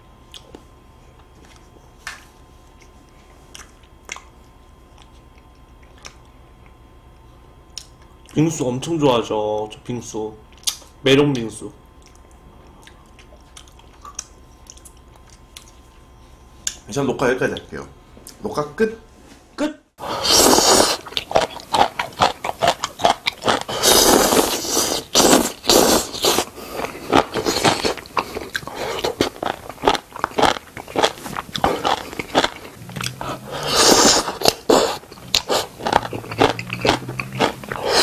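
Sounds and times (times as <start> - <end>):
chewing crisp food: 2.7 - 8.4, 10.5 - 16.1, 20.3 - 38.0.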